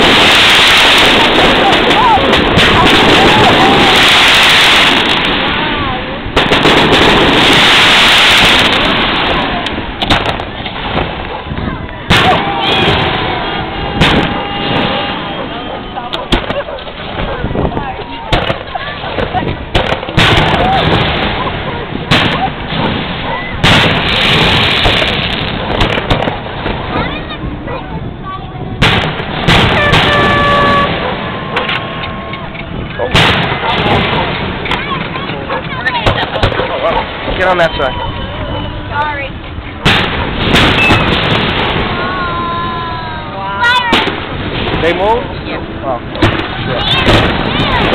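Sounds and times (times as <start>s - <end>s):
firework bangs: 0.0s - 27.9s, 28.6s - 47.9s
firework crackling: 0.0s - 47.9s
small firework cracks: 6.3s - 13.2s, 17.9s - 27.3s, 39.8s - 42.7s, 43.7s - 45.2s.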